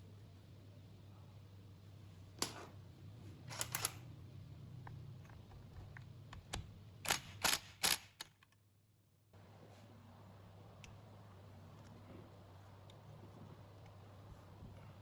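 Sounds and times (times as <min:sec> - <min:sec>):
low steady hum: 0:08.8 - 0:15.0.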